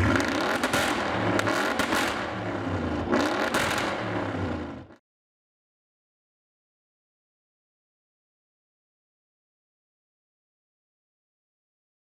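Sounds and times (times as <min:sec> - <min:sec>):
car engine accelerating hard: 0:00.0 - 0:05.0
exhaust crackle: 0:00.0 - 0:05.0.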